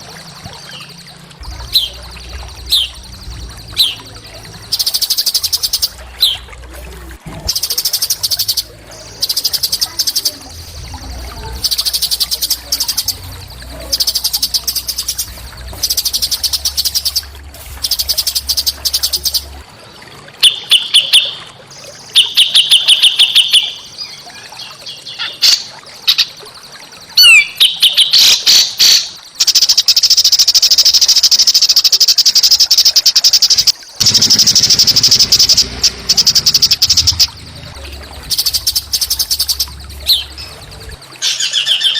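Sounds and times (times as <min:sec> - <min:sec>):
songbird buzzing trills: 0:00.0 - 0:21.2, 0:33.2 - 0:41.9.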